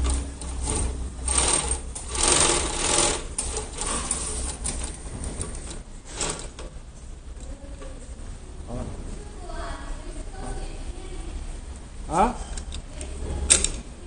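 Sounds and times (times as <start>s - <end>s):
sewing machine stitching: 0.0s - 6.7s.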